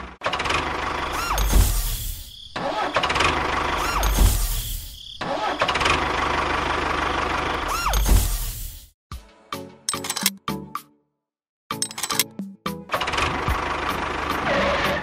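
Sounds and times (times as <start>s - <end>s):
tractor engine revving: 0.0s - 1.6s, 2.6s - 4.4s, 5.2s - 8.1s, 12.9s - 15.0s.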